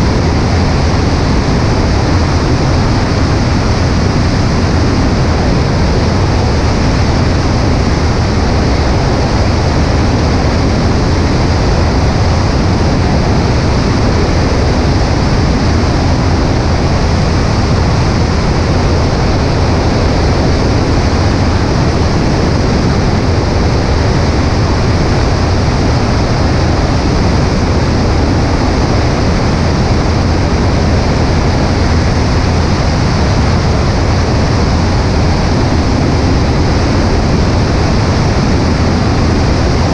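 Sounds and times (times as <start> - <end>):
plane engine and propeller drone: 0.0 - 39.9
wind rush on microphone: 0.0 - 39.9.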